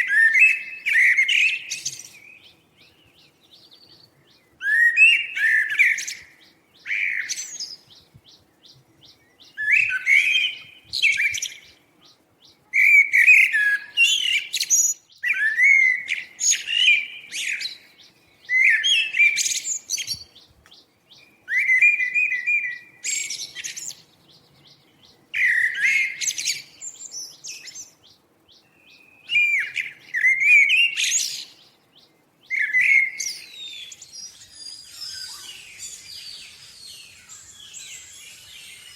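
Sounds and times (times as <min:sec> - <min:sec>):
songbird singing warbled phrases: 0:00.0 - 0:38.9.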